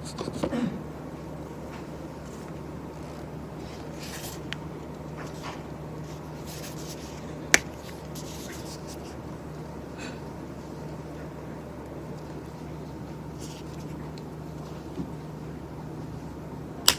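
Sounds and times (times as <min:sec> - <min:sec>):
steady low hum: 0:00.0 - 0:16.9
soft rustles on desk: 0:01.8 - 0:04.5, 0:05.1 - 0:09.2, 0:13.3 - 0:15.1.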